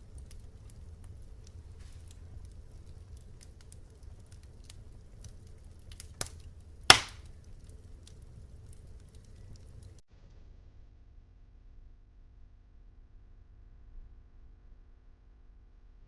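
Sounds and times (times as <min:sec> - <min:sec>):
sharp fire pops: 0:00.0 - 0:10.0
wood fire crackling: 0:00.0 - 0:10.0
low steady rumble: 0:00.0 - 0:16.0.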